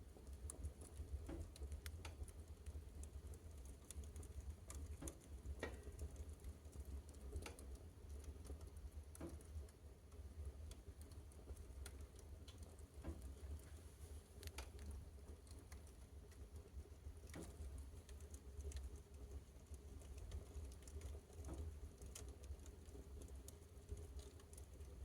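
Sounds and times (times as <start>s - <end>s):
fire crackling: 10.6s - 19.1s.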